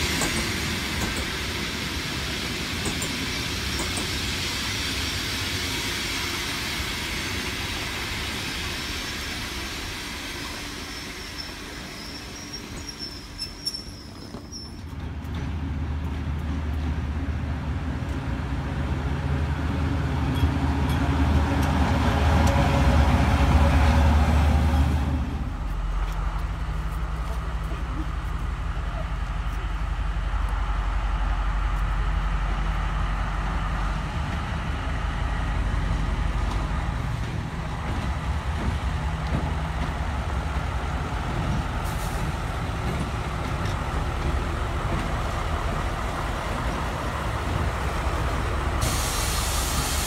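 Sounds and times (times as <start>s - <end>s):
train coaches rolling past: 0.0s - 50.0s.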